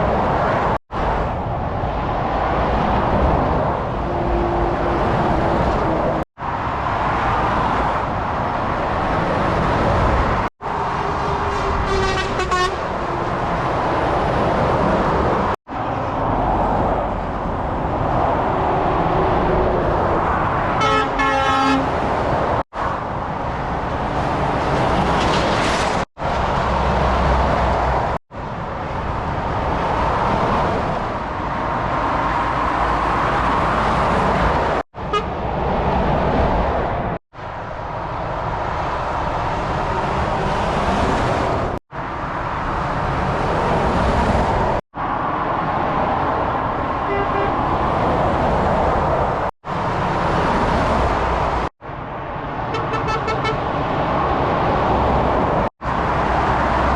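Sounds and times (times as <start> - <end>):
heavy motorway traffic: 0.0 - 56.9
vehicle horn tooting: 11.5 - 12.8, 20.8 - 21.9, 47.1 - 47.6, 52.7 - 53.6.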